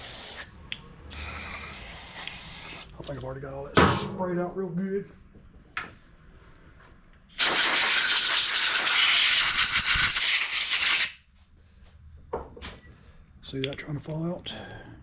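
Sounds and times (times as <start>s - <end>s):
pressurised jet hissing: 7.4s - 11.1s.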